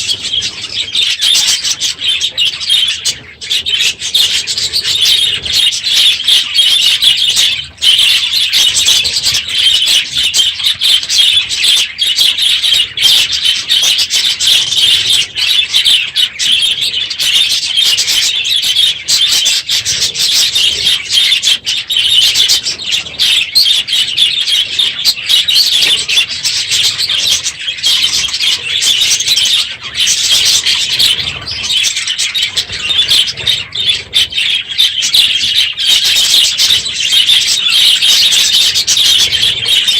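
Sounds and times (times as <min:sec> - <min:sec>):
flock of budgerigars chattering: 0:00.0 - 0:39.9.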